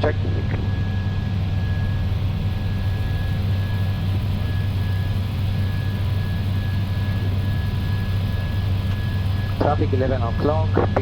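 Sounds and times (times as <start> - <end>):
faint high steady whine: 0.0 - 11.0
low drone of engines and airflow: 0.0 - 11.0.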